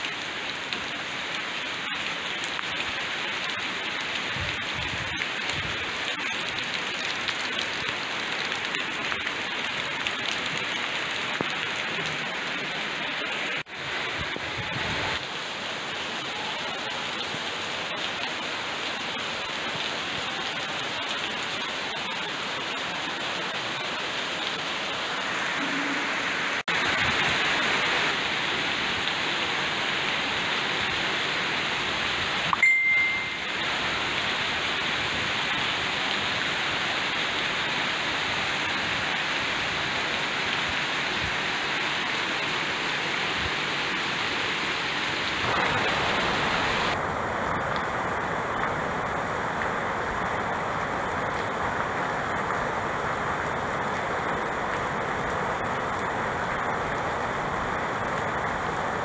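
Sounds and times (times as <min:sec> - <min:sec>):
heavy rain on leaves: 0:00.0 - 0:59.0
short high ding: 0:32.5 - 0:33.5.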